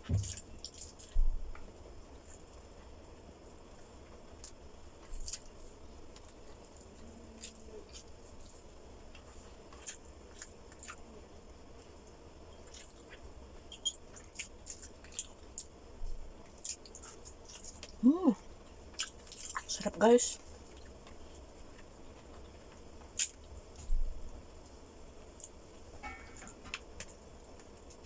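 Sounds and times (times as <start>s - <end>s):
person chewing: 4.3s - 11.1s, 12.6s - 15.8s, 16.4s - 18.2s, 18.9s - 19.7s.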